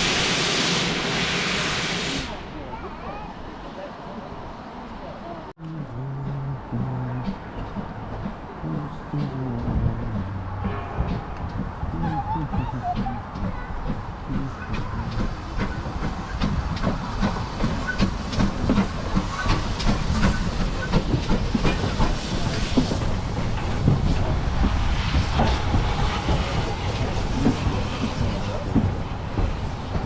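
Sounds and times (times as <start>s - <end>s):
hissing steam: 0.0s - 2.8s, 13.9s - 30.0s
steam train rumble: 0.0s - 30.0s
wheels clicking on track: 11.2s - 30.0s.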